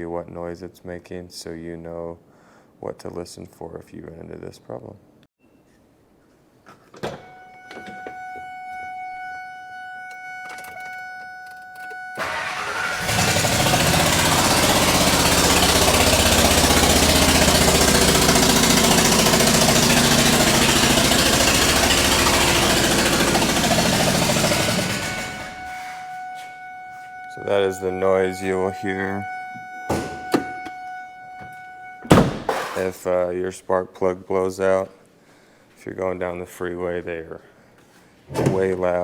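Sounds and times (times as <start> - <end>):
steady warning tone: 7.1 - 32.2
engine starting and running loudly: 12.2 - 26.1.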